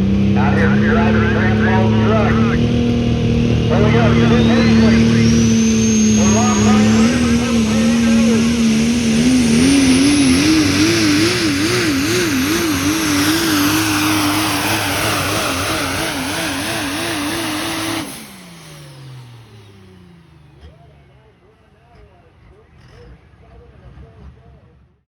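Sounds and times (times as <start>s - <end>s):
truck engine revving under load: 0.0s - 21.2s.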